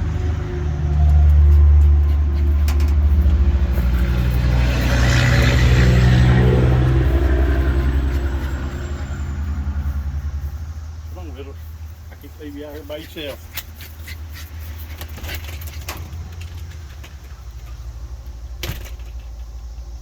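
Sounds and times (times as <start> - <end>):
vehicle engine drone passing: 0.0 - 13.5.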